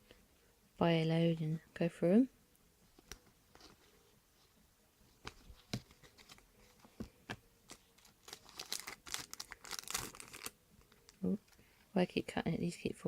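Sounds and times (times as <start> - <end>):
wrapper crinkling: 7.7 - 11.6.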